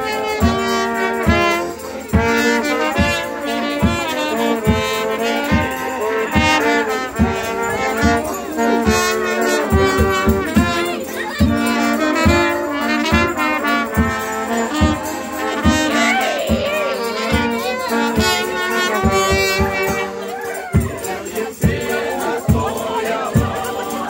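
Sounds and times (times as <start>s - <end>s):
brass band playing folk tune: 0.0s - 24.0s
bass drum beat: 6.3s - 24.0s.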